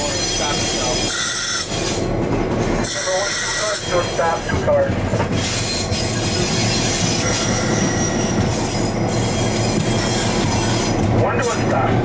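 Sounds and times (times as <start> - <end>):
high wheel squeal: 0.0 - 2.0, 2.8 - 4.5, 5.4 - 11.0
locomotive engine drone: 0.0 - 12.0
rail noise: 0.0 - 12.0.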